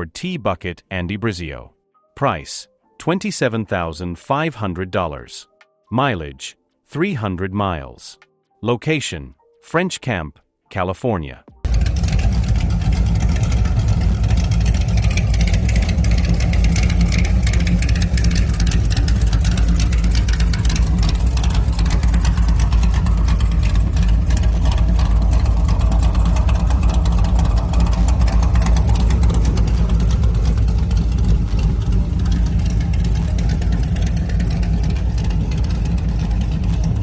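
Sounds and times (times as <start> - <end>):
hot rod engine idling: 11.7 - 37.0.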